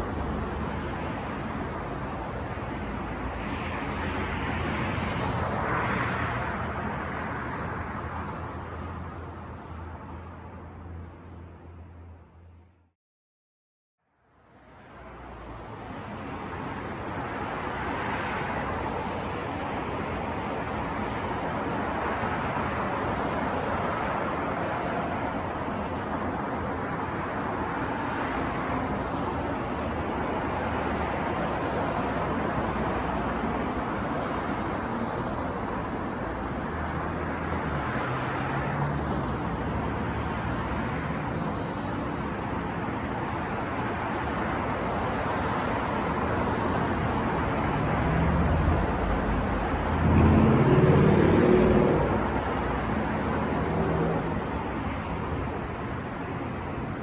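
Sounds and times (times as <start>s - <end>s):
passing cars: 0.0s - 12.7s, 14.4s - 57.0s
vehicle engine passing close: 47.9s - 54.5s.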